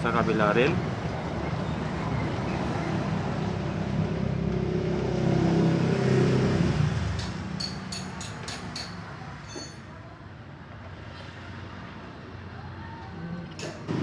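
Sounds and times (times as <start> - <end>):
vehicle engine passing: 0.0 - 8.4.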